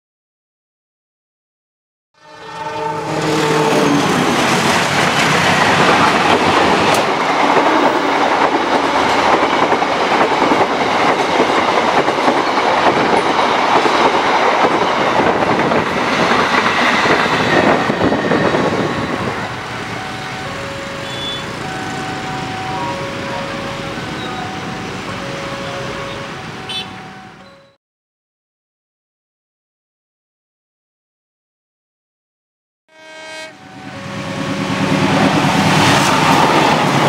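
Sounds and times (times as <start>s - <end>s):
train wheels clattering on rails: 3.9s - 25.8s, 34.8s - 37.0s.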